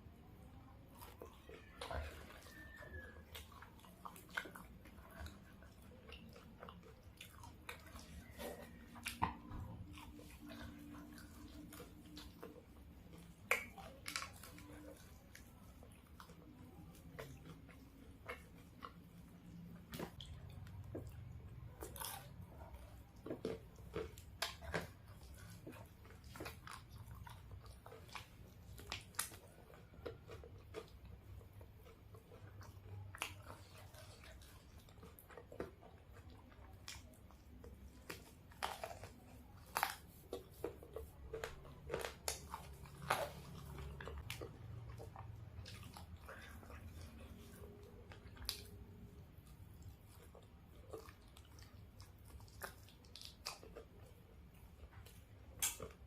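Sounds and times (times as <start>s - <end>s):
chewing fried chicken crunches: 0.0s - 56.0s.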